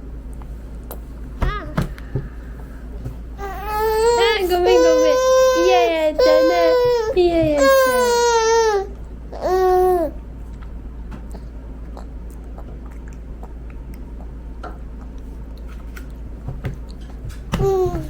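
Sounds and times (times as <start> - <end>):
toddler whining: 3.4 - 10.2, 17.6 - 18.0
child chewing and mouth clicks: 10.5 - 16.2.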